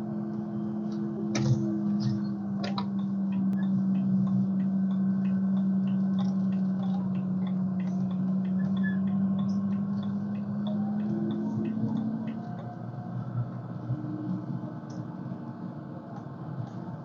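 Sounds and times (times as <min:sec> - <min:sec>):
car engine and road drone: 0:00.0 - 0:17.0
faint light ticks: 0:00.3 - 0:12.8.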